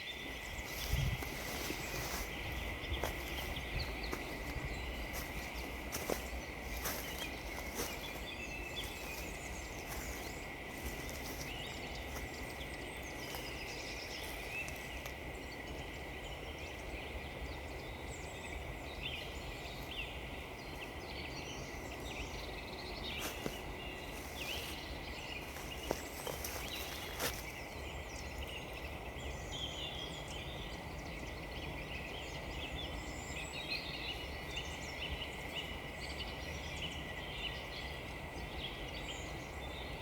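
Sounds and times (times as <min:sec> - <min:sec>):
footsteps crunching on frozen ground: 0:00.0 - 0:15.3, 0:23.0 - 0:28.6
small birds chirping: 0:00.0 - 0:40.0
steady outdoor hiss: 0:00.0 - 0:40.0.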